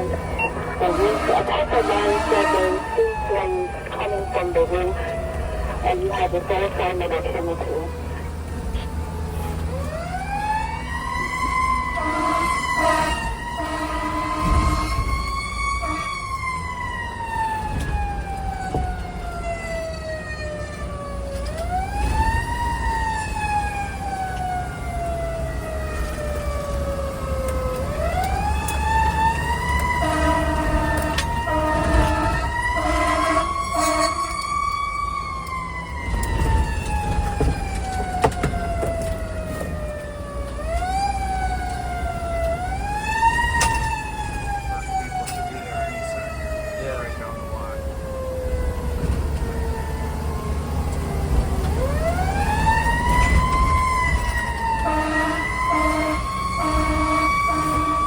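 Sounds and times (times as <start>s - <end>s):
low engine rumble: 0.0s - 9.8s
fire truck siren wailing: 0.0s - 58.0s
short horn blasts: 12.0s - 15.2s, 30.0s - 34.3s, 54.8s - 58.0s.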